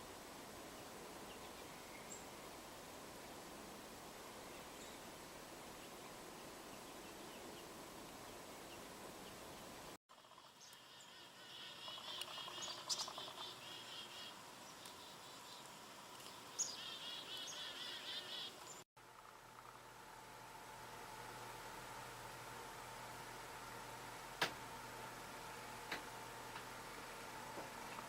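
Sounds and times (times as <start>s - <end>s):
faint outdoor background: 0.0s - 28.0s
small songbird trilling: 10.4s - 18.8s
sharp bird ticks: 10.6s - 17.6s.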